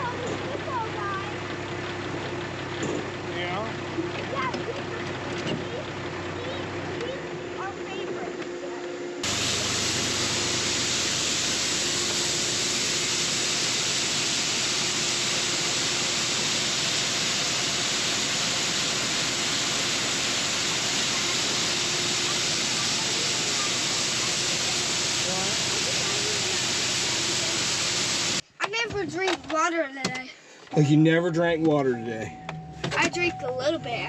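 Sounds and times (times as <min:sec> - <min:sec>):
loud steady hissing: 0:09.2 - 0:28.6.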